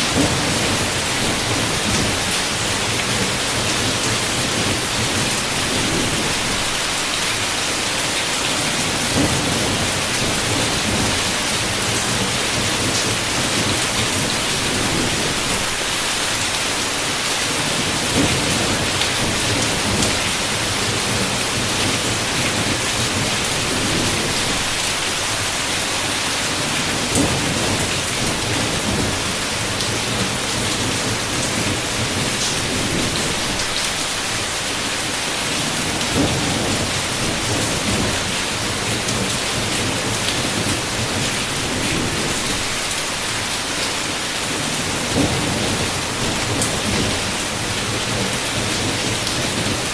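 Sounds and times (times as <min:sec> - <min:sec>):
heavy rain pattering: 0:00.0 - 0:49.9
thunder rumbling: 0:00.1 - 0:06.8.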